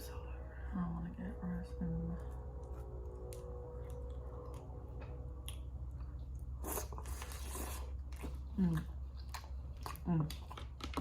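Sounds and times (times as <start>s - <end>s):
biting and chewing: 2.3s - 11.0s.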